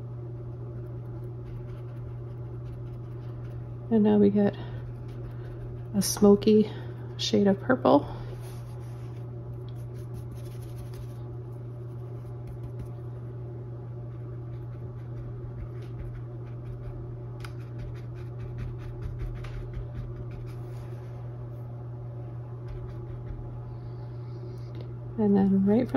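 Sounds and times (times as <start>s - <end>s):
steady low hum: 0.0s - 25.9s
paintbrush scratching on canvas: 0.9s - 3.7s, 9.8s - 11.2s.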